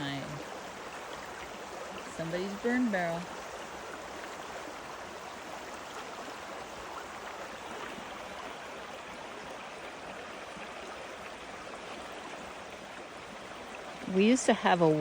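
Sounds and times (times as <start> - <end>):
creek water rushing and gurgling: 0.0 - 15.0.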